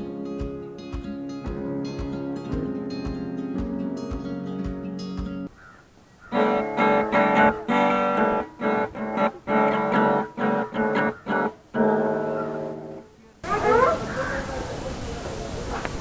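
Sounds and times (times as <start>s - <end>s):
guitar chords: 0.0s - 5.5s, 6.3s - 13.1s.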